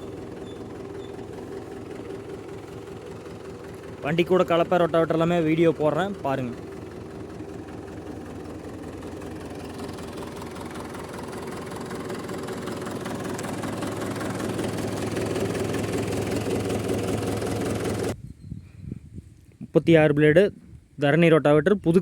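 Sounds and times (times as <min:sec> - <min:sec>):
tractor diesel engine idling: 0:00.0 - 0:18.2.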